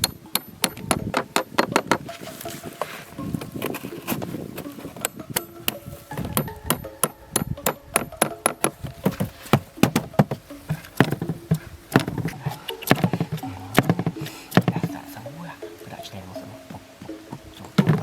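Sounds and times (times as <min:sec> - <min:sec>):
sharp knocks: 0:00.0 - 0:02.2, 0:05.0 - 0:15.0.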